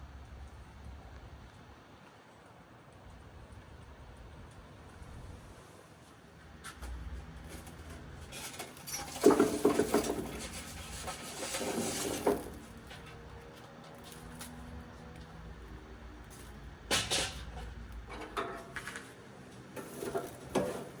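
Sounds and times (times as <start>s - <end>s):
crackling and rustling handling noise: 6.5s - 21.0s.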